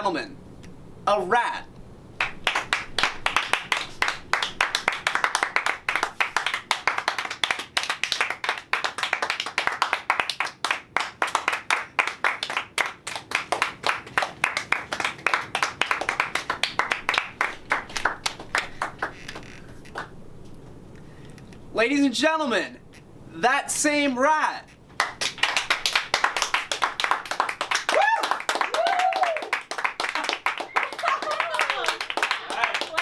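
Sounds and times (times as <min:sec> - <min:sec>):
group clapping: 0:02.2 - 0:20.2, 0:25.0 - 0:33.0.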